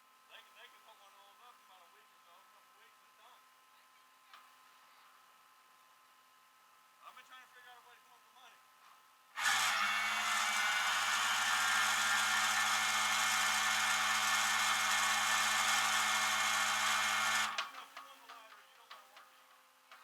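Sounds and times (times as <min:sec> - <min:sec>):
machine humming with hiss: 0:09.4 - 0:17.8.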